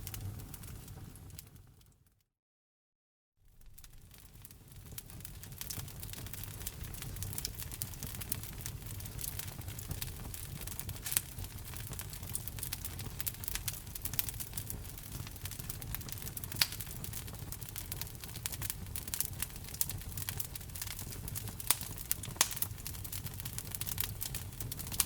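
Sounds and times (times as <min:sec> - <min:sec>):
sharp pops from fire: 0:00.0 - 0:01.6, 0:03.6 - 0:25.0
wood fire crackling: 0:00.0 - 0:01.9, 0:03.5 - 0:25.0.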